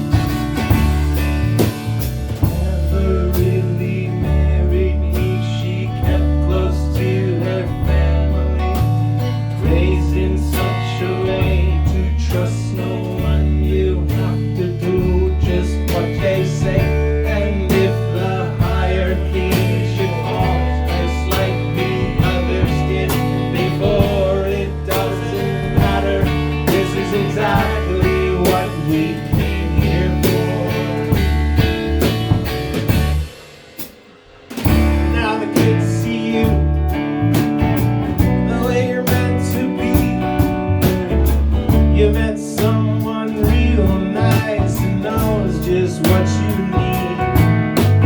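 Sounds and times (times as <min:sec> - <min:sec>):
drum hits: 0:00.0 - 0:03.6, 0:15.9 - 0:48.0
low bass riff: 0:00.0 - 0:33.4, 0:34.4 - 0:48.0
acoustic guitar: 0:00.0 - 0:48.0.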